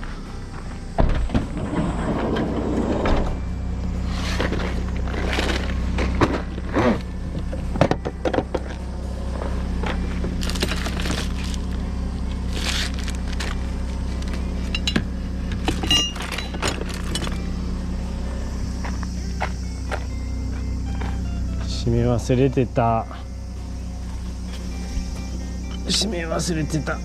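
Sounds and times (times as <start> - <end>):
tractor engine idling: 0.0 - 27.0
metallic clinks and knocks: 14.2 - 17.5.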